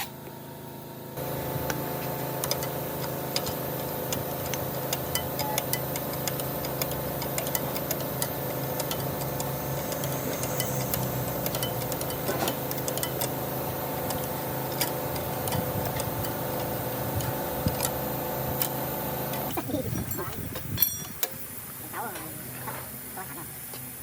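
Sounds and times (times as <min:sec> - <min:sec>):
machine humming: 0:00.0 - 0:24.0
irregular ticks and clicks: 0:02.4 - 0:13.4.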